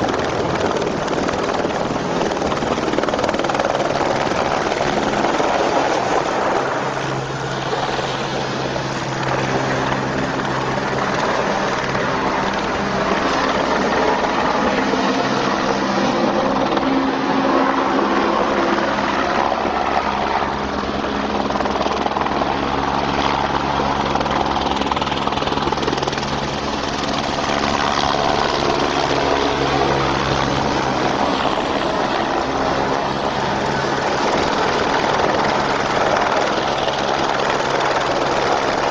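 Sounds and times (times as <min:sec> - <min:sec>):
helicopter rotor whir: 0:00.0 - 0:38.9.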